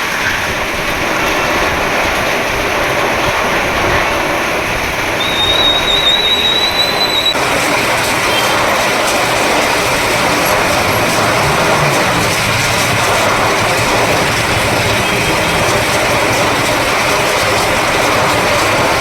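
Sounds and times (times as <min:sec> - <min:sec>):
heavy rain hissing: 0:00.0 - 0:19.0
high whistle-like tone: 0:05.2 - 0:07.4.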